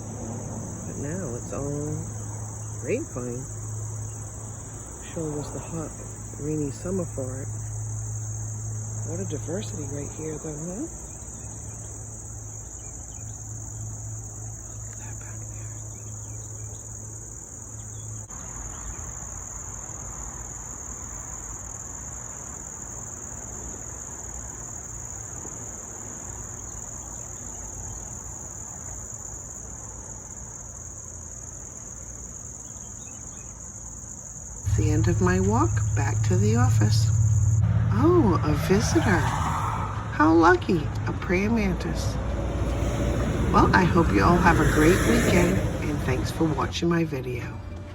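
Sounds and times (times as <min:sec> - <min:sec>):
crickets chirping: 0:00.0 - 0:47.9
low steady hum: 0:34.6 - 0:47.9.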